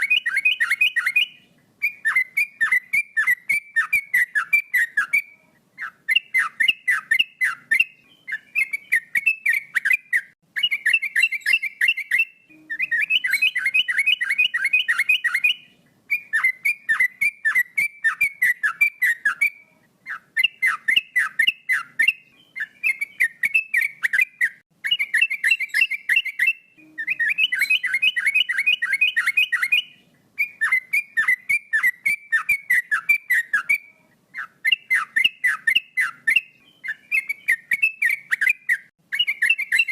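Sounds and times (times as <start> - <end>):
bird whistling song: 0.0 - 39.9.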